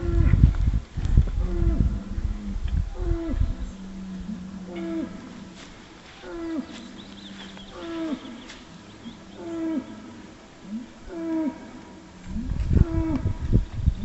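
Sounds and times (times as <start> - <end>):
bulls calling: 2.9 - 13.3.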